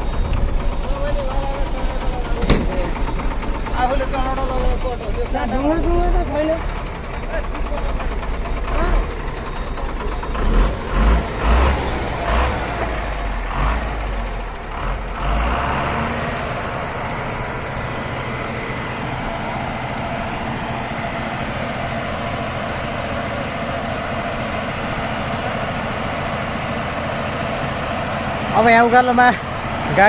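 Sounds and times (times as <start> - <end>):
truck engine running: 0.0 - 30.0
heavy knocks and thumps: 2.3 - 3.3.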